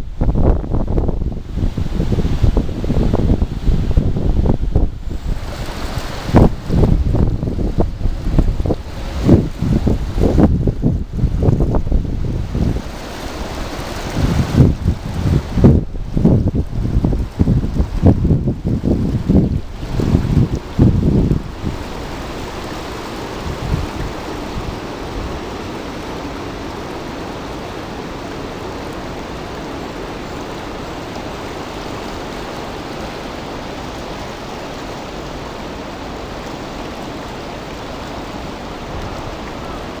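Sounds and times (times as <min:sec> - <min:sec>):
wind buffeting microphone: 0:00.0 - 0:27.7
river rushing: 0:00.0 - 0:40.0.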